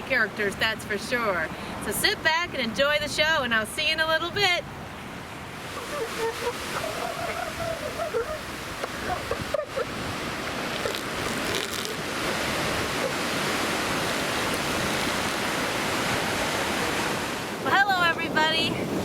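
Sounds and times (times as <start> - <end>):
ocean surf breaking: 3.8 - 19.0.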